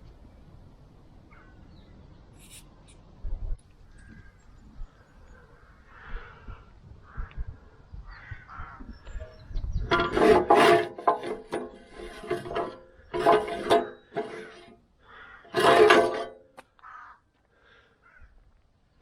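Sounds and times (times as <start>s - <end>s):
crows cawing: 5.5s - 7.4s, 8.1s - 8.8s, 15.0s - 15.5s, 16.8s - 18.4s.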